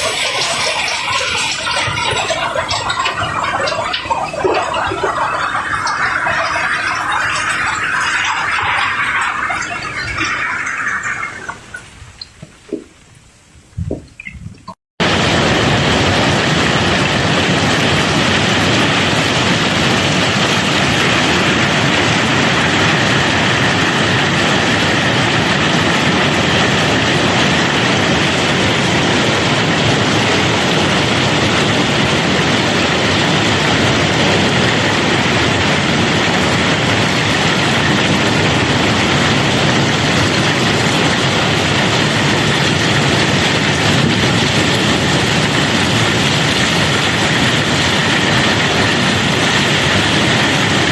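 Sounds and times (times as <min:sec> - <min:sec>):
rattle of tumbling rocks: 0:00.0 - 0:13.0.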